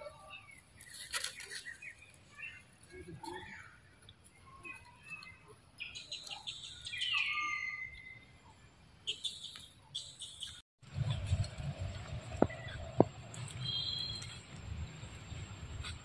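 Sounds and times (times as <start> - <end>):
birds chirping: 0.0 - 11.4, 12.0 - 14.5
whistled bird call: 5.8 - 8.3, 13.6 - 14.3.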